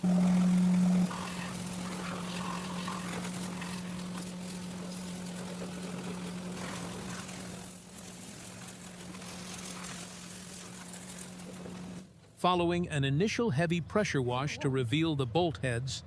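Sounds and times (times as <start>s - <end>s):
motor humming with hiss: 0.0s - 12.1s.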